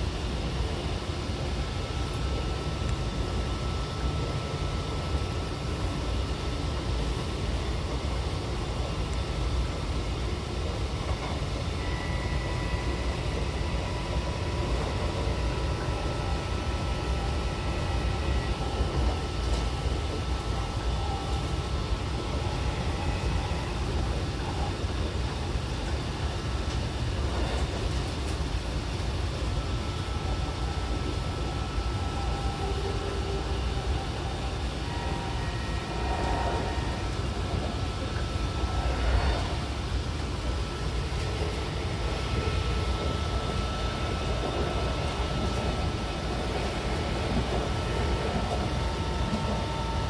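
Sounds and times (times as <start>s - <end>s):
electric train motor whine: 0.0s - 50.0s
train wheels rumbling on rail: 0.0s - 50.0s.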